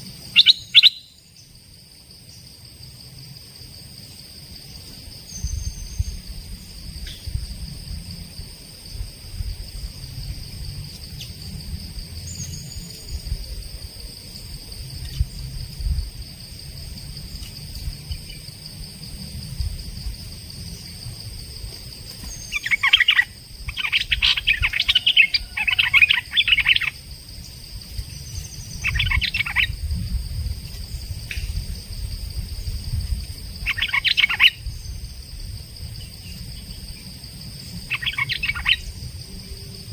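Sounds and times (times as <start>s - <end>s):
songbird chattering calls: 0.3s - 1.2s, 22.2s - 27.0s, 28.1s - 29.8s, 33.6s - 35.0s, 37.9s - 38.9s.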